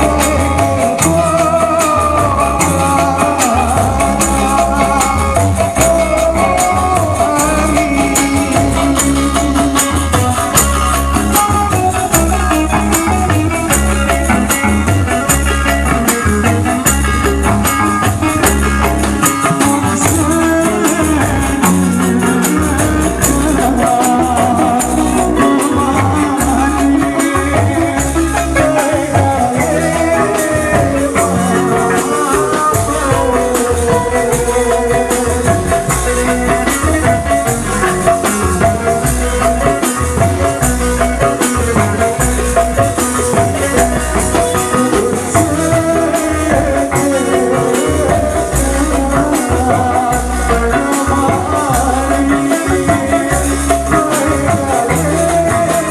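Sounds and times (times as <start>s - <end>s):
busy high percussion: 0.0s - 55.9s
heavy steady drum beat: 0.0s - 55.9s
street band music over sound system: 0.0s - 55.9s.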